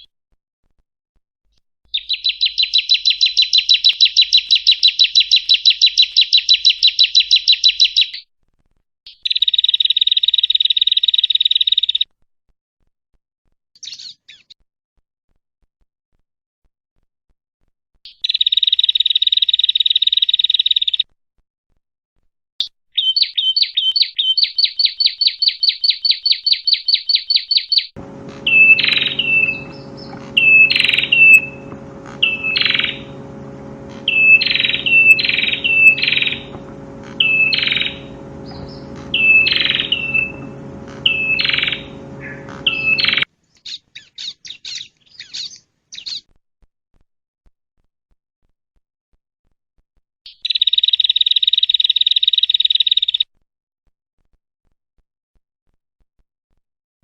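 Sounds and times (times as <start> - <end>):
songbirds calling: 28.0 - 43.2
steady low hum: 28.0 - 43.3.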